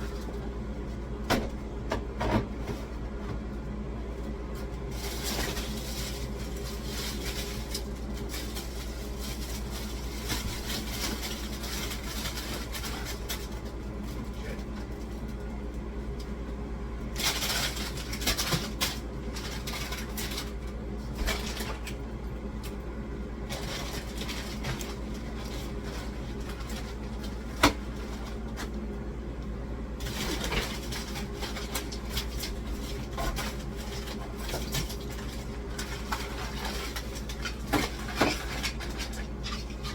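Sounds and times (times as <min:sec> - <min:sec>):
steady low hum: 0:00.0 - 0:39.9
household items clattering: 0:30.0 - 0:39.9.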